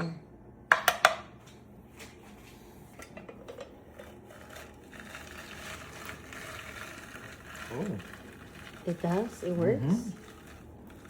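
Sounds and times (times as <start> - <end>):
faint steady rustle: 3.9 - 11.0
juice squeezer clicks and creaks: 4.3 - 11.0.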